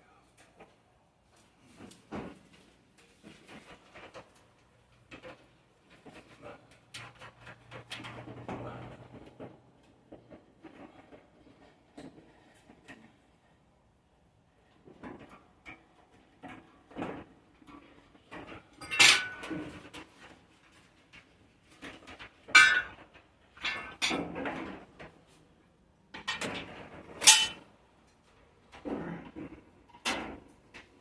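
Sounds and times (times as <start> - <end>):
hands handling wiring on sheet metal: 0.3 - 13.4, 14.6 - 28.8
metallic clanks with ring: 27.2 - 27.6.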